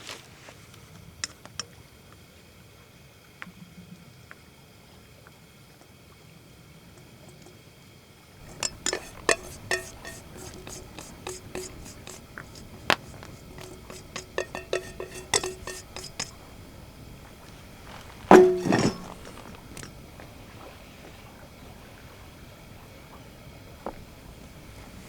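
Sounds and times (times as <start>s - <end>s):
metal clank: 8.4s - 16.8s, 17.8s - 20.0s
utensil clinking on metal pot: 8.4s - 16.8s, 17.4s - 20.0s.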